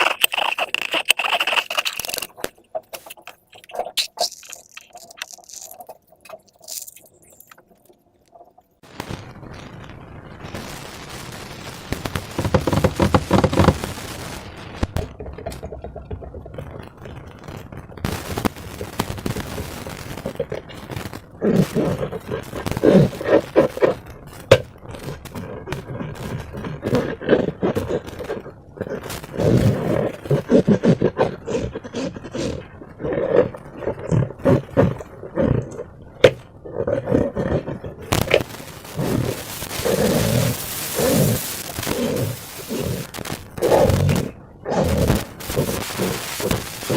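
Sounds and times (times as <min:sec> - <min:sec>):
slime squished by hand: 0:00.0 - 0:07.6.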